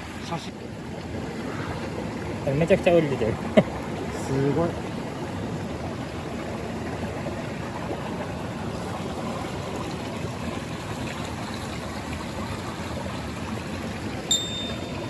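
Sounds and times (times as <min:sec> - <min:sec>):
stream flowing: 0:00.0 - 0:15.0.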